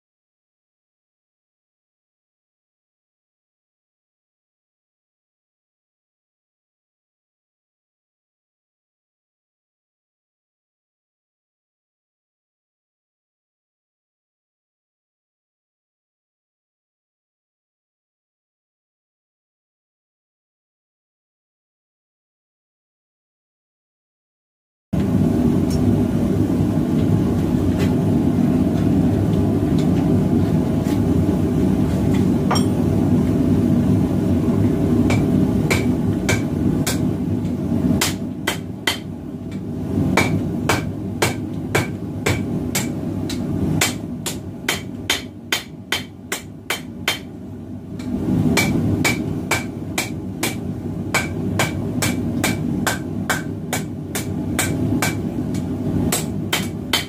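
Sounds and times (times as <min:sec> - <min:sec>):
gas forge roaring: 0:25.0 - 0:57.0
hammer ringing on anvil: 0:32.5 - 0:32.8.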